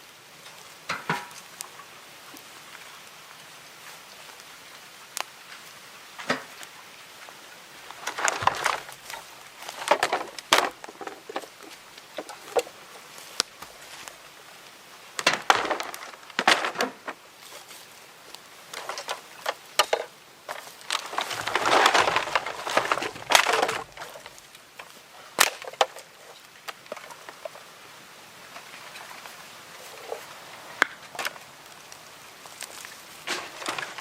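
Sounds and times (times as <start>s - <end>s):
wood rasping and crunching: 7.9s - 14.4s, 15.2s - 27.5s, 32.4s - 34.0s.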